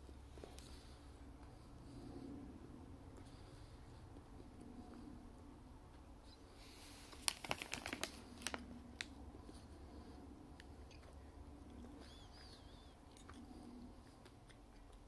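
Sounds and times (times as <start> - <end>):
quiet chewing: 0.0 - 15.0
crackly clicks of eating snack: 7.1 - 9.2, 10.5 - 15.0.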